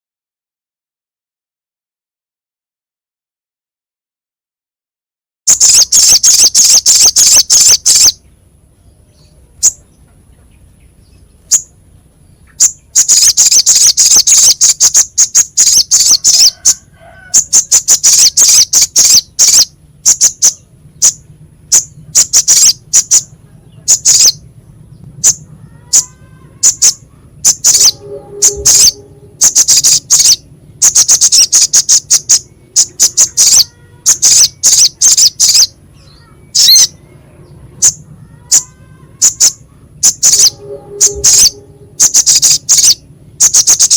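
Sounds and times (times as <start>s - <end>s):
bird calling sharp high chips: 5.5s - 8.2s, 12.5s - 21.2s, 21.8s - 23.3s, 25.2s - 37.0s, 37.8s - 43.9s.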